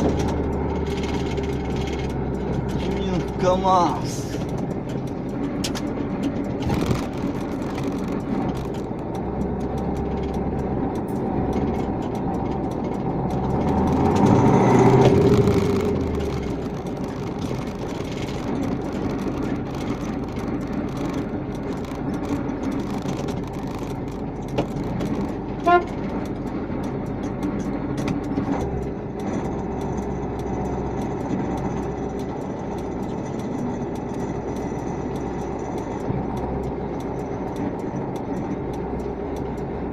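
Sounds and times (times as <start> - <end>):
vehicle engine running: 0.0 - 39.9
short horn toot: 25.6 - 25.9.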